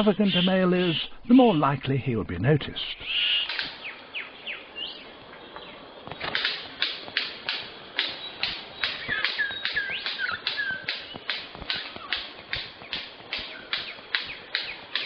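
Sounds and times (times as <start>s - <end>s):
birds whistling sweeps: 0.0s - 1.3s, 2.9s - 15.0s
whip-like bird calls: 3.2s - 3.9s, 6.1s - 15.0s.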